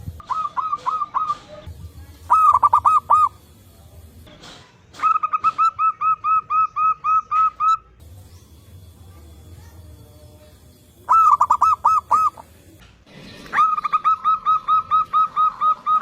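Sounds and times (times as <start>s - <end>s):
doves cooing: 0.2s - 3.4s, 11.1s - 16.0s.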